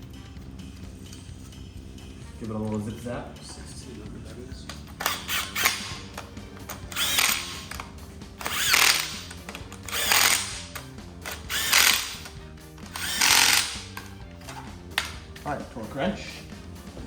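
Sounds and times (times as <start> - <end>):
background music: 0.0 - 17.0
cordless power tool bursts: 4.8 - 14.1.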